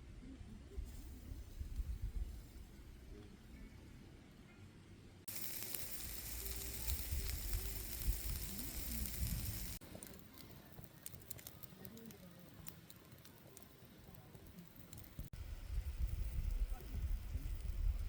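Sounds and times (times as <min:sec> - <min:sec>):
food sizzling: 0:05.3 - 0:18.0
wood fire crackling and popping: 0:05.3 - 0:18.0.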